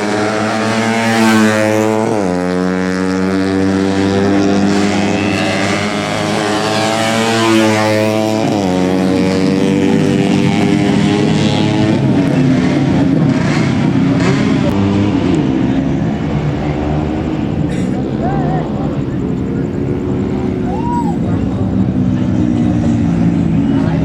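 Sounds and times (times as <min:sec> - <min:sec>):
motorcycle passing by: 0:00.0 - 0:17.7
race motorcycles running hard: 0:00.0 - 0:24.0.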